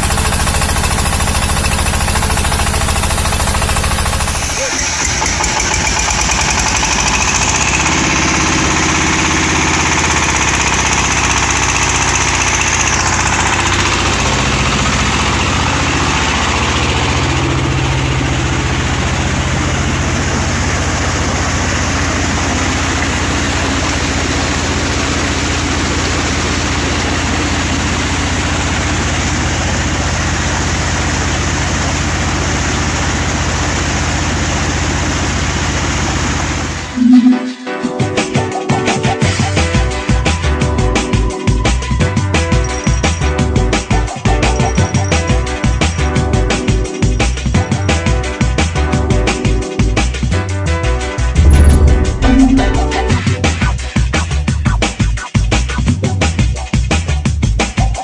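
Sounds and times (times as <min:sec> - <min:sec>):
diesel pump engine knocking: 0:00.0 - 0:36.7.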